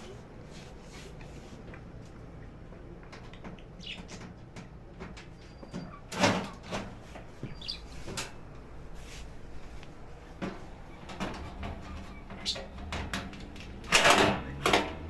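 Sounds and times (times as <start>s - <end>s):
faint squeaks: 5.3s - 8.2s, 10.1s - 13.0s
washing machine clicks and knocks: 10.3s - 15.0s.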